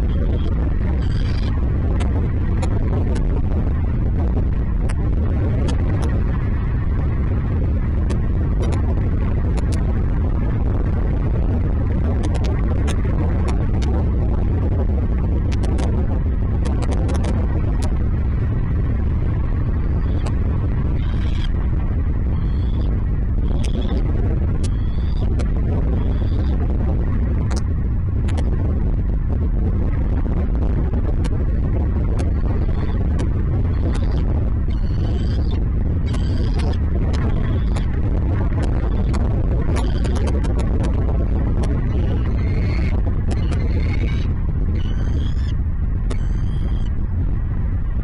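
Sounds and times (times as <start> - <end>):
steady low rumble: 0.0 - 48.0
sharp ticks: 9.6 - 9.8, 12.2 - 13.9, 15.5 - 15.9, 22.4 - 24.0, 28.3 - 28.5, 32.2 - 38.0, 38.6 - 41.0, 41.6 - 45.5, 46.1 - 46.9.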